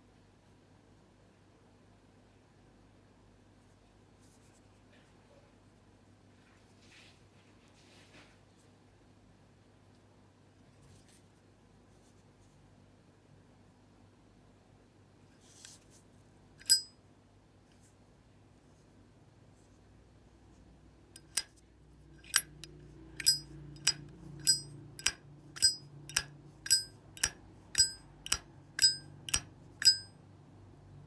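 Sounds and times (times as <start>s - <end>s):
lighter lid opening with metallic ping: 16.6s - 16.9s, 21.2s - 21.5s, 22.2s - 22.6s, 23.2s - 30.1s
lighter lid clicking shut: 21.2s - 21.5s, 22.2s - 22.6s, 23.2s - 30.1s.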